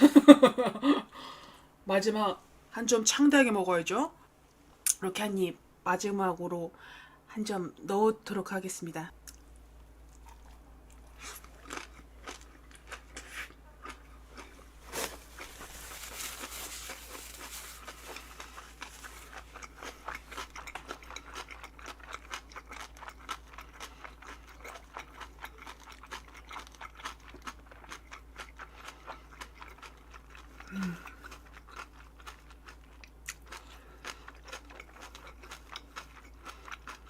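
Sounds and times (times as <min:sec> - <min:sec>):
close chewing and crunching: 0:10.0 - 0:37.0.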